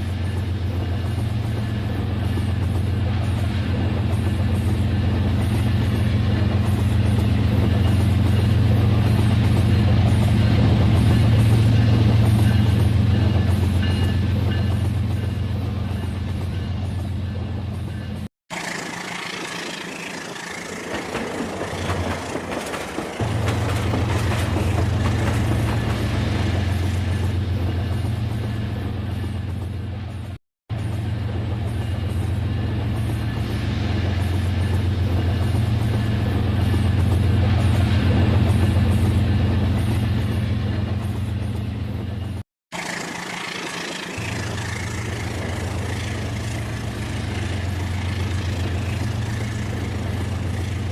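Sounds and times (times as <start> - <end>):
toy train running on track: 18.5 - 23.2, 42.8 - 50.9.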